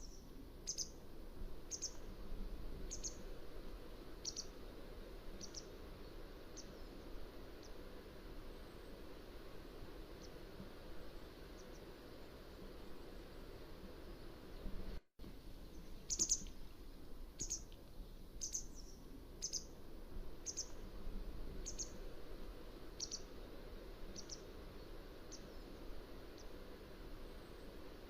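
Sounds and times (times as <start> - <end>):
bird giving sharp high calls: 16.1 - 16.5.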